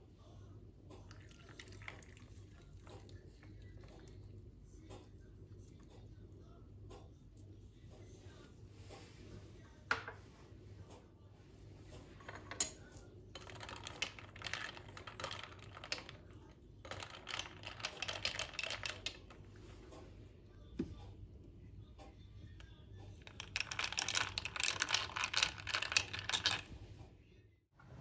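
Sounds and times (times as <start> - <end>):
utensils clattering and scraping: 11.8 - 20.0, 23.2 - 26.9.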